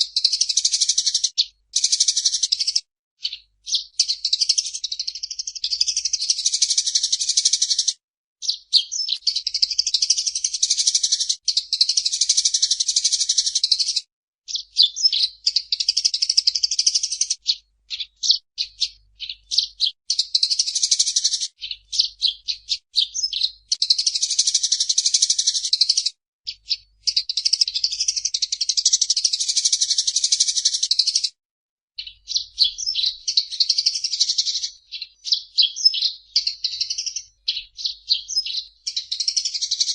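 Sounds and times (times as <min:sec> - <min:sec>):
sparrow chirping: 0:00.0 - 0:31.4, 0:32.0 - 0:39.9.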